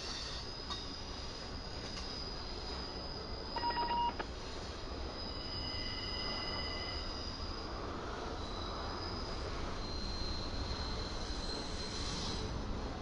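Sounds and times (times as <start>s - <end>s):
short steady beep: 3.6s - 4.2s.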